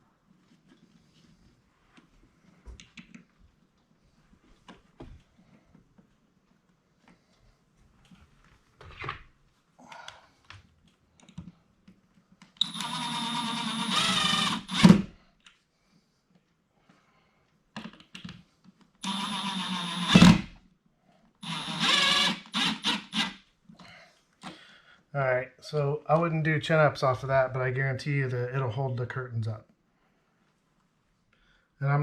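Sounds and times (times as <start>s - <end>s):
cordless drill motor whine: 12.6s - 15.1s, 19.0s - 20.5s, 21.4s - 23.4s.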